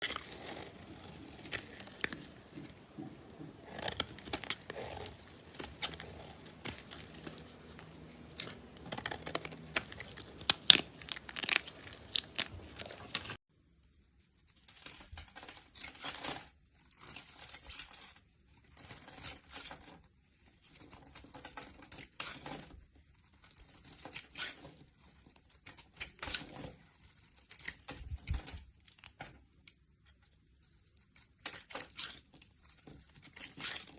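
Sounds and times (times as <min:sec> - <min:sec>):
crunchy material crackling: 0:00.0 - 0:13.4.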